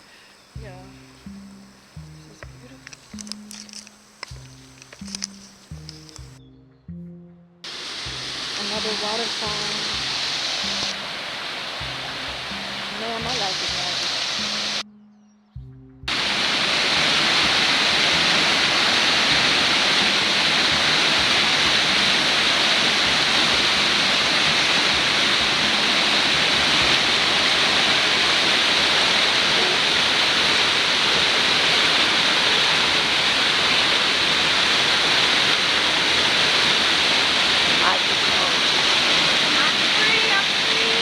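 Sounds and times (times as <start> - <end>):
waterfall rushing: 7.6 - 14.8, 16.1 - 41.0.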